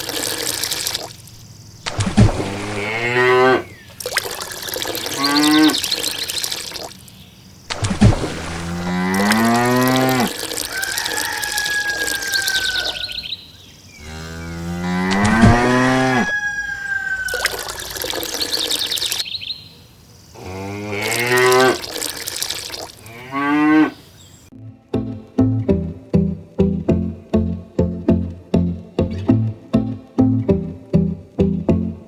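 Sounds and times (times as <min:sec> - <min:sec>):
cows mooing: 0:02.7 - 0:03.7, 0:05.2 - 0:05.8, 0:08.8 - 0:13.1, 0:14.0 - 0:16.4, 0:20.4 - 0:21.9, 0:23.1 - 0:24.0.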